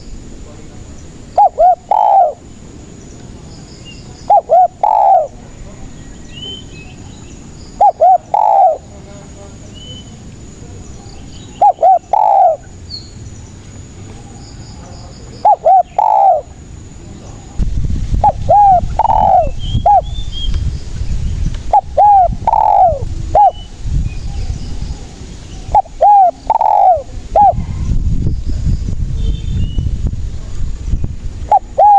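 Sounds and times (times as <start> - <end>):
dove cooing: 1.4 - 2.5, 4.2 - 5.5, 7.8 - 8.9, 11.6 - 12.8, 15.4 - 16.6, 18.2 - 20.2, 21.6 - 23.7, 25.0 - 27.8, 31.5 - 31.9.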